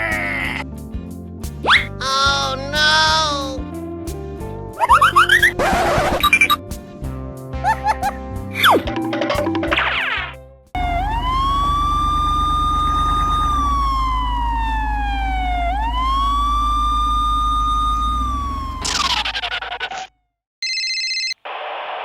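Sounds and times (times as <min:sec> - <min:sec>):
police siren wailing: 0:10.8 - 0:19.4.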